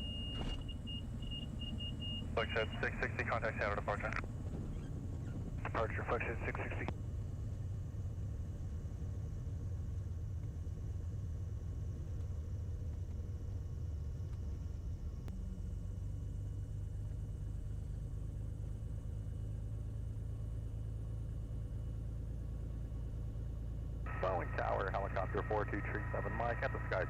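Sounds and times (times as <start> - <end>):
light aircraft engine drone: 0.0 - 27.0
higher steady hum: 2.3 - 6.9, 22.7 - 27.0.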